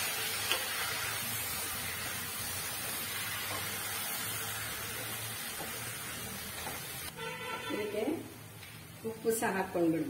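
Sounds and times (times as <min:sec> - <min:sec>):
tomatoes sizzling in hot oil: 0:00.0 - 0:07.2.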